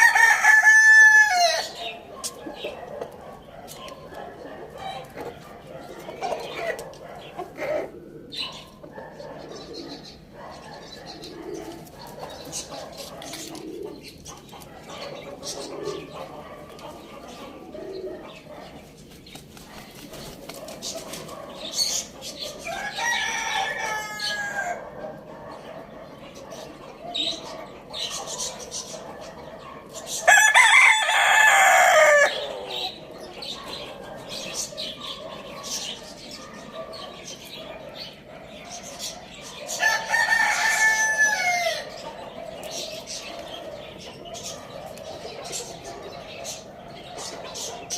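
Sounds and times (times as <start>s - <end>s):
rooster crowing: 0.0s - 1.8s, 22.6s - 24.8s, 30.3s - 32.5s, 39.8s - 42.0s
soft bird sounds: 0.0s - 47.9s.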